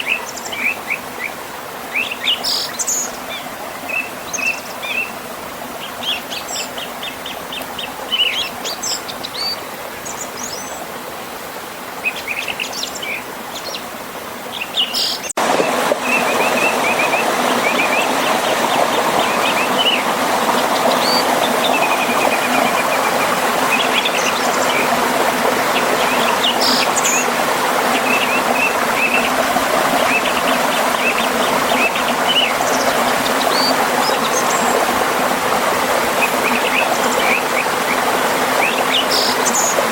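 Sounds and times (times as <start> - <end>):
river and waterfall rushing: 0.0 - 39.9
songbirds chirping and trilling: 12.0 - 35.1.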